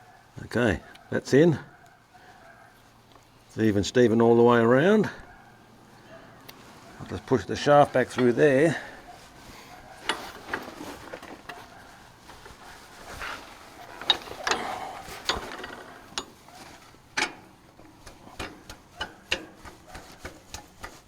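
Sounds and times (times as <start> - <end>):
metal clicks and knocks: 13.9 - 21.0.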